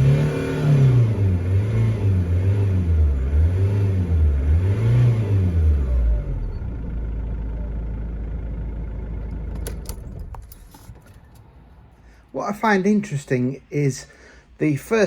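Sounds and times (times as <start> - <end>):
diesel car engine revving: 0.0 - 10.9.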